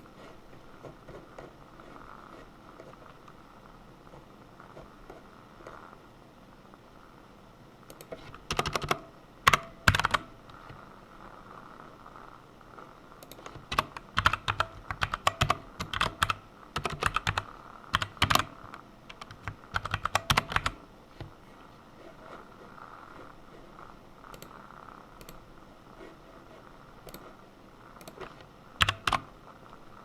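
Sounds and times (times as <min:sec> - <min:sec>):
typing on computer keyboard: 0:07.9 - 0:10.4, 0:13.2 - 0:20.8, 0:28.0 - 0:29.3.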